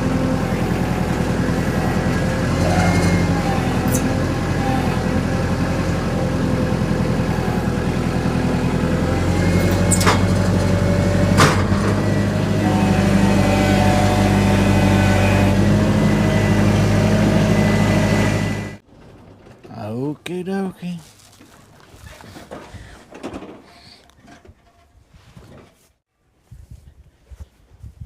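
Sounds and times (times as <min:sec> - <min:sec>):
engine running under load: 0:00.0 - 0:20.4.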